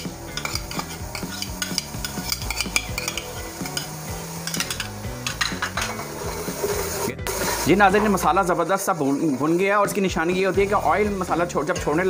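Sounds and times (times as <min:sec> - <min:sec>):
spoon scraping metal pot: 0:00.0 - 0:07.7
masala sizzling in oil: 0:00.0 - 0:12.0.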